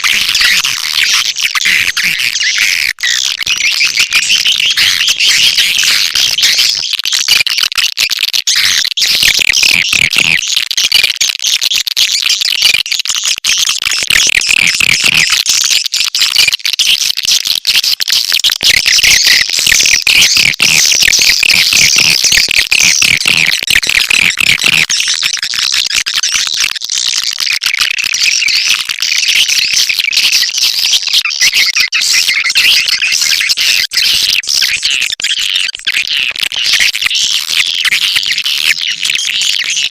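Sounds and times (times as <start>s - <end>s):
dense chatter of bird twitters: 0.0s - 7.0s, 28.1s - 39.9s.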